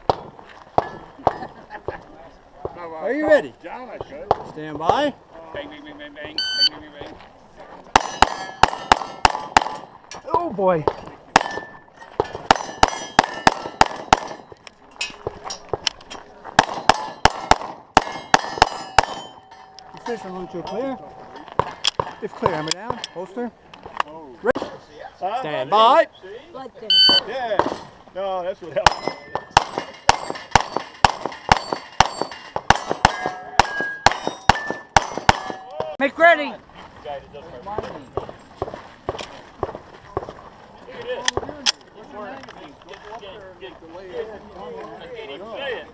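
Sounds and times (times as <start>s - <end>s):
pistol shots: 11.3s - 14.4s, 16.6s - 19.4s, 28.9s - 35.7s
steel plates ringing: 16.9s - 21.6s, 28.8s - 35.7s.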